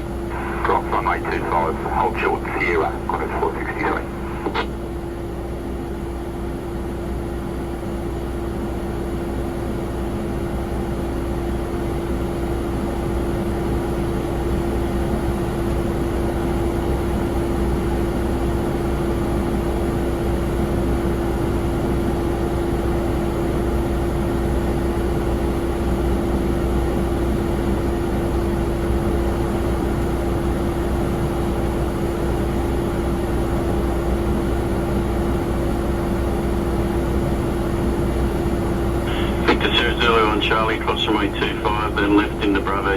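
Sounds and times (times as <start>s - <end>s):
jet airliner engine whine: 0.0s - 11.7s, 29.3s - 42.9s.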